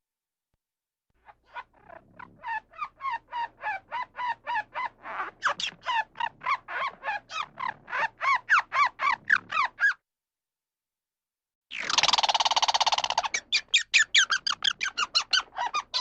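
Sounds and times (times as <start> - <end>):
bird squawking: 11.7 - 16.0.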